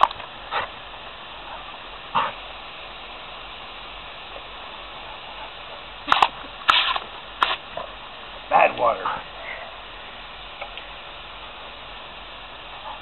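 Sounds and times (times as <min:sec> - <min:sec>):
water spraying from hose nozzle: 0:00.0 - 0:13.0
dog barking: 0:01.4 - 0:02.4.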